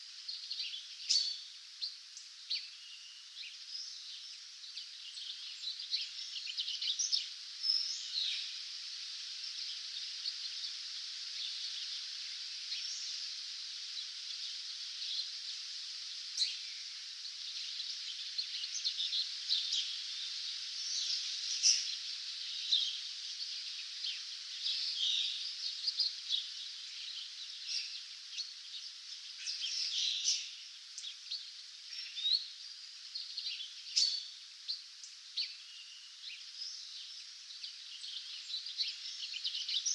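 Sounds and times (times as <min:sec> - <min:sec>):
steady high hiss: 0:00.0 - 0:39.9.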